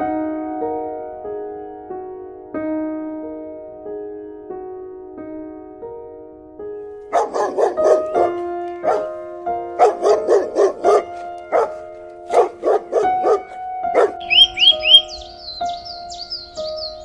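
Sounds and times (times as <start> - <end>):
soft piano music: 0.0 - 17.0
dog barking: 7.1 - 9.2, 9.8 - 17.0.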